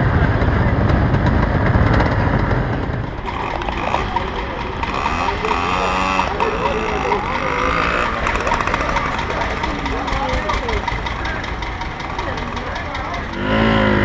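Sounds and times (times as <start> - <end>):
engine ticking: 0.0 - 14.0
motorcycle engines running: 0.0 - 14.0
people talking: 0.0 - 14.0.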